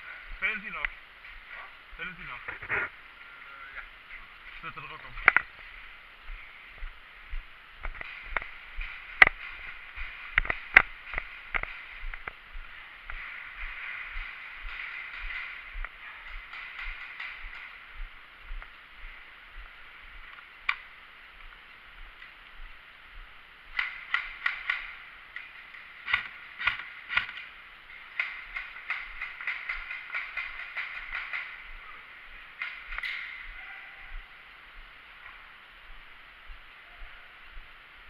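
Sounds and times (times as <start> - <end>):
airsoft guns firing: 7.8 - 18.2, 23.7 - 34.2.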